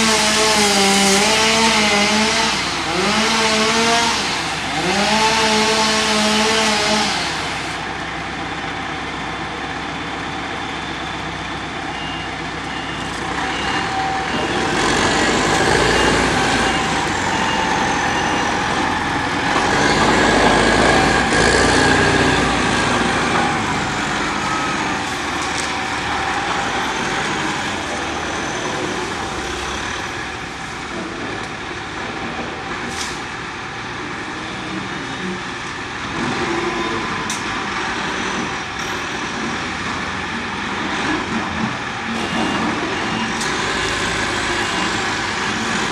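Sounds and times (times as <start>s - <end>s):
heavy vehicle engines running: 0.0s - 45.9s
backup alarm beeping: 11.9s - 21.0s.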